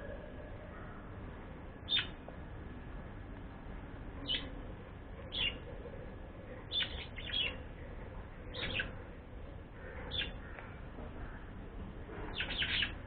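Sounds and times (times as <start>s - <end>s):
steady background hiss: 0.0s - 13.0s
bird chirping: 1.8s - 2.2s, 4.2s - 4.6s, 5.2s - 5.7s, 6.7s - 7.7s, 8.4s - 9.0s, 9.8s - 10.6s, 12.3s - 13.0s.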